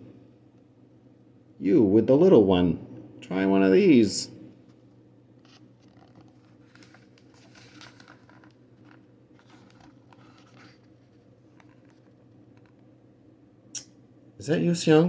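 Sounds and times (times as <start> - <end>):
low room hum: 0.0 - 15.0
paper rustling: 5.4 - 12.8.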